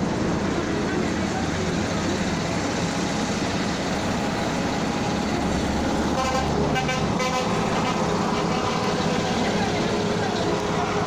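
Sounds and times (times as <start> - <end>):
train rumble and hiss: 0.0 - 11.0
train horn: 6.1 - 9.0.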